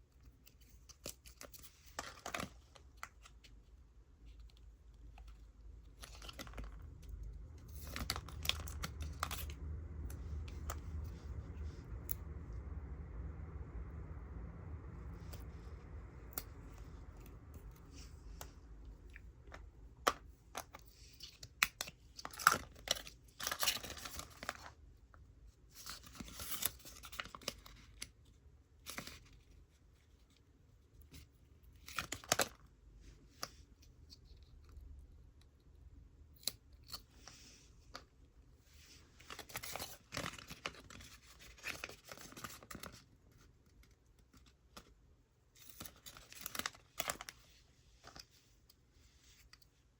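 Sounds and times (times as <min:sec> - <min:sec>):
rustling and scraping: 0:37.0 - 0:49.9.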